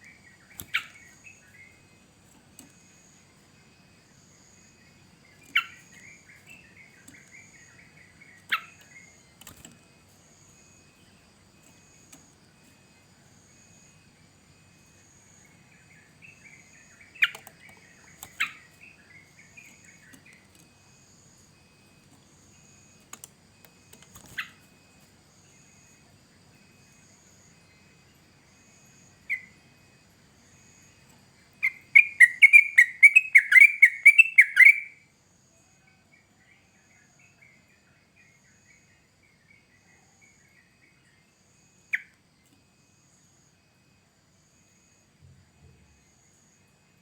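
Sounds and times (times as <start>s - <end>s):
bird chirping and singing: 0.0s - 1.8s, 5.3s - 9.7s, 15.8s - 20.6s, 31.6s - 34.9s.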